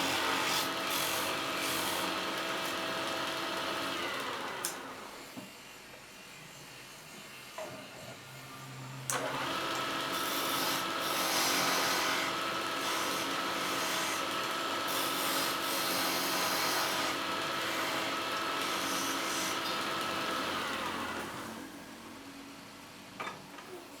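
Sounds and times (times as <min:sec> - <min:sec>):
wood lathe motor whine: 0:00.0 - 0:05.2, 0:09.1 - 0:21.6
wood rasping on lathe: 0:14.9 - 0:19.7.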